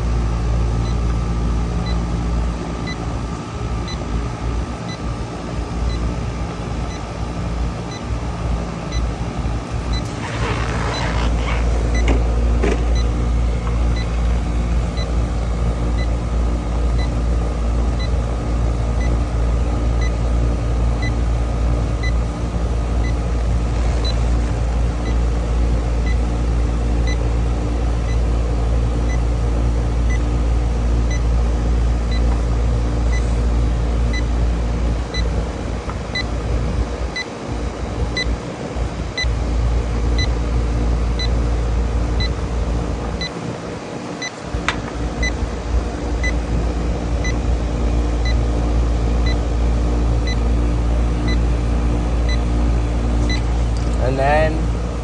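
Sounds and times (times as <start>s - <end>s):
air conditioner condenser hum: 0.0s - 55.0s
leak detector beeping: 9.7s - 16.2s, 16.9s - 17.2s, 21.0s - 25.3s, 27.0s - 27.3s, 32.1s - 32.4s, 33.1s - 33.4s, 36.1s - 36.4s, 40.1s - 40.4s, 41.1s - 42.5s, 44.2s - 45.4s, 46.2s - 46.4s, 47.2s - 47.5s, 49.2s - 51.6s, 52.2s - 54.7s.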